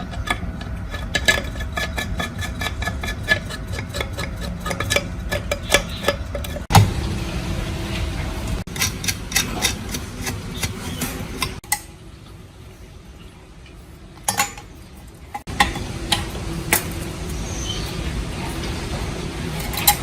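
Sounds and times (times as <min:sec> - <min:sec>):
steady low hum: 0:00.0 - 0:20.0
metal tools clinking: 0:14.2 - 0:20.0.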